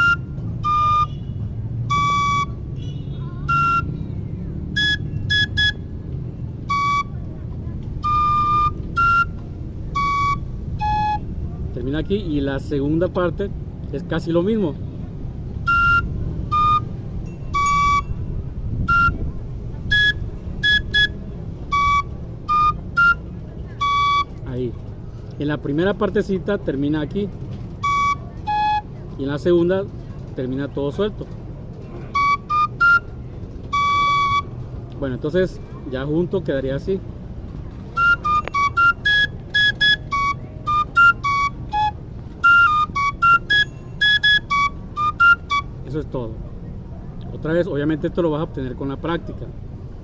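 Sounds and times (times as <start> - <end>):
high-pitched flute melody: 0.0 - 12.1, 15.6 - 24.6, 27.8 - 29.2, 32.0 - 34.7, 37.8 - 46.0.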